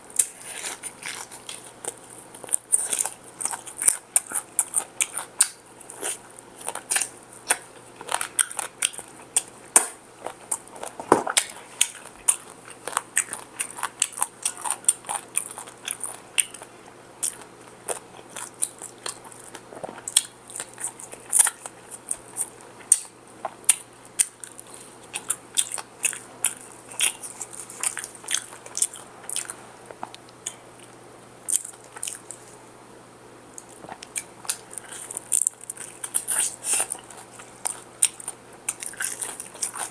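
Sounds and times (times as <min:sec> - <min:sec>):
crunchy chewing of fried chicken: 0:00.0 - 0:39.9.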